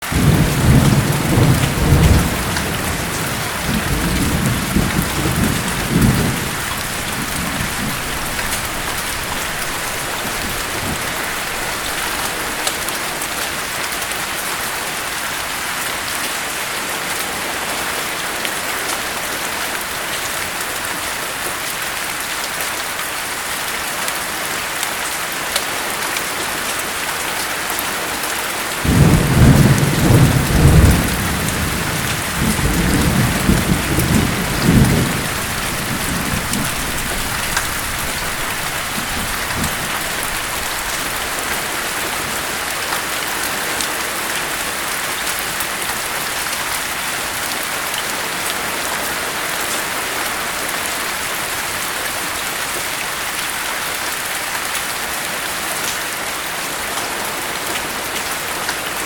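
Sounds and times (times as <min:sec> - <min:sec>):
heavy rain hissing: 0:00.0 - 0:16.0, 0:27.9 - 0:59.0
thunder rumbling: 0:00.1 - 0:12.9, 0:28.8 - 0:42.4.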